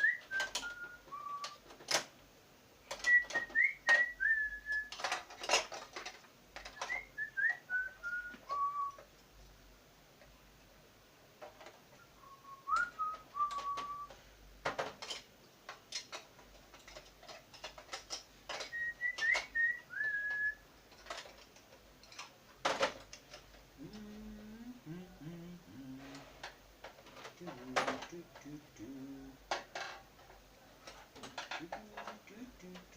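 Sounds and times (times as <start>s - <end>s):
person whistling a tune: 0.0s - 1.6s, 3.0s - 5.0s, 6.7s - 9.0s, 12.2s - 14.2s, 18.6s - 20.6s
clicks of small parts handled: 4.7s - 7.0s, 13.5s - 23.7s, 29.5s - 32.9s.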